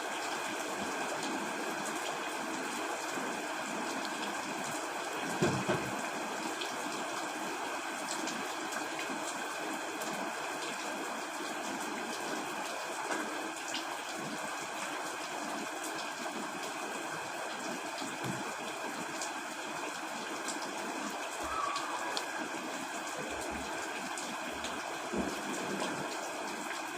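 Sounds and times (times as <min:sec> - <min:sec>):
rain on a tent: 0:00.0 - 0:26.9
knock: 0:05.4 - 0:05.9.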